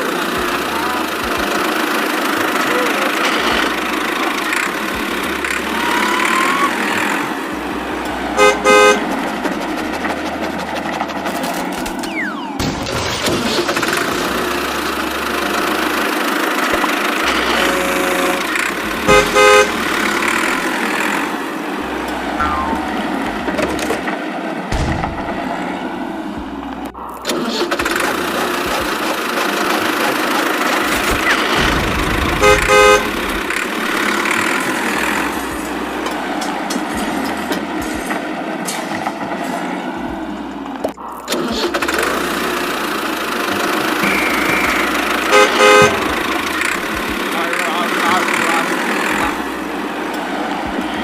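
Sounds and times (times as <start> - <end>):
tractor engine running: 0.0 - 51.0
horn toots: 2.6 - 10.7, 16.8 - 23.4, 28.6 - 35.4, 43.9 - 49.4
horn short beeps: 44.0 - 46.1.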